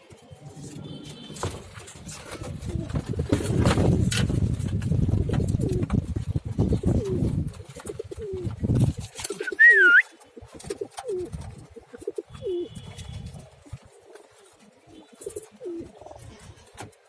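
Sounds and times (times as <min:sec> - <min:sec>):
pigeons cooing: 0:00.0 - 0:04.0, 0:05.2 - 0:17.0
high wavering whistle: 0:09.4 - 0:10.1.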